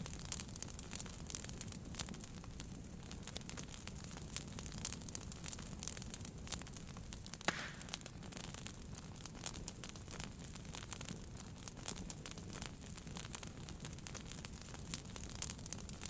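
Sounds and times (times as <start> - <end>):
low fire rumble: 0.0 - 16.0
wood fire crackling: 0.0 - 16.0
loud pop with hiss: 7.4 - 8.1.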